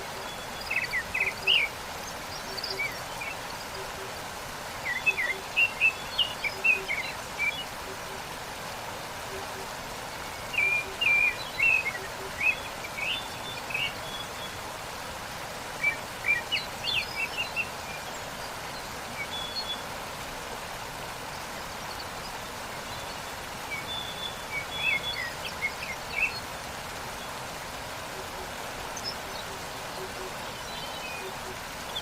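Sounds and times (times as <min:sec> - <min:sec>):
waterfall rushing: 0:00.0 - 0:32.0
small birds chirping: 0:21.2 - 0:32.0.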